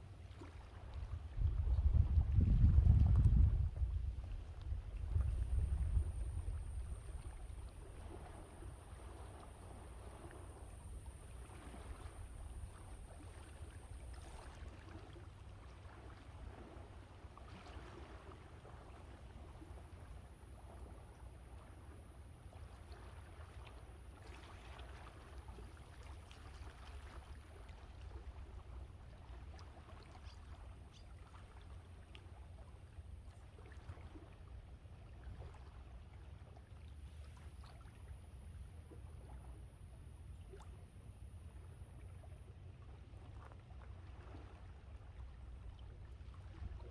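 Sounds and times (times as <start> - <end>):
wind rumble on microphone: 0.0 - 22.2, 42.9 - 46.9.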